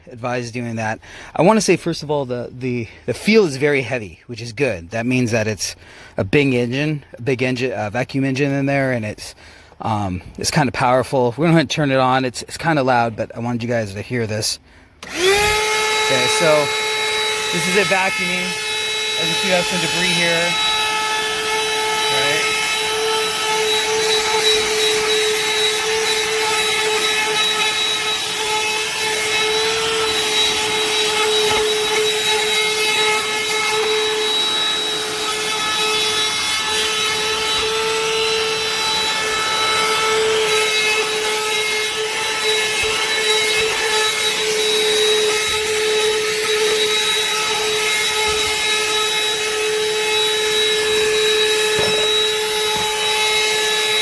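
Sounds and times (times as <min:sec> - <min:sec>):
handheld vacuum running: 0:15.0 - 0:54.0.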